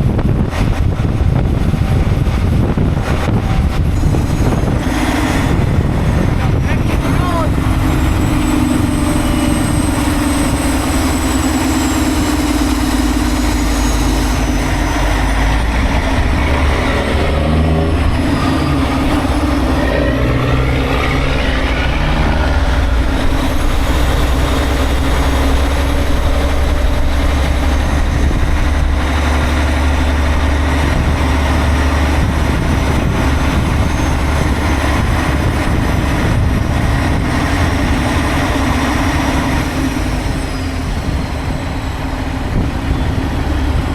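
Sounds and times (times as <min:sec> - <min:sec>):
diesel truck engine running: 0:00.0 - 0:43.9.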